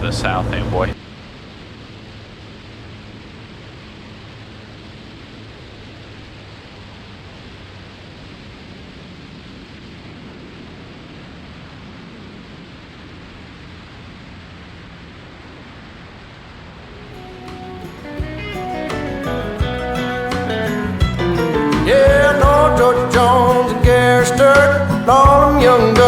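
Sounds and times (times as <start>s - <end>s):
airplane cabin engine and airflow noise: 0.0s - 25.2s.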